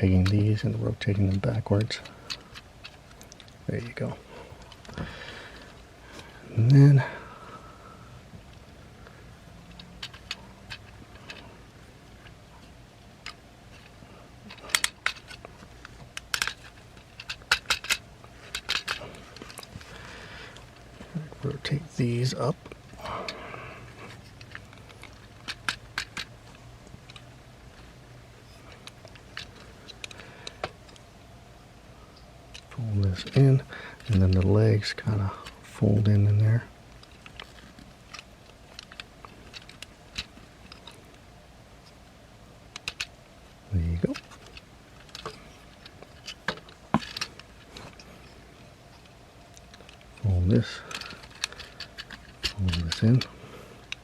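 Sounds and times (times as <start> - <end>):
plastic toy parts clicking: 9.8 - 11.4, 14.5 - 19.8, 24.4 - 26.3, 26.9 - 27.3, 28.8 - 31.0, 37.0 - 41.2, 42.7 - 43.2, 44.0 - 48.1, 49.0 - 54.0.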